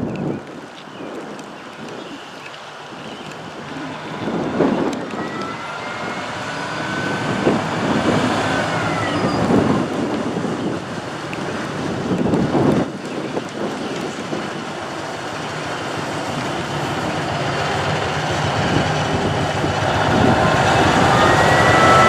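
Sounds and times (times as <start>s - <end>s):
wind buffeting microphone: 0.0s - 22.0s
locomotive wheels squealing: 3.7s - 10.6s, 16.2s - 22.0s.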